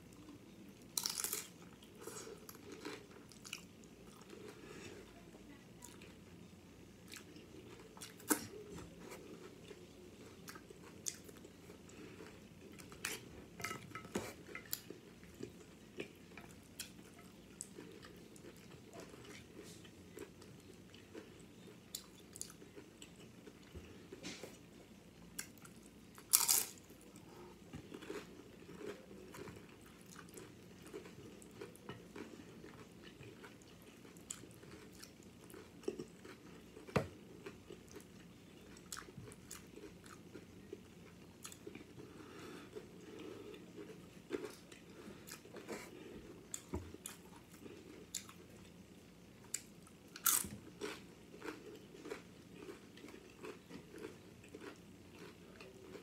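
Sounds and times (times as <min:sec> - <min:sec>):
chewing and crunching chips: 0:00.0 - 0:05.2, 0:07.0 - 0:56.0.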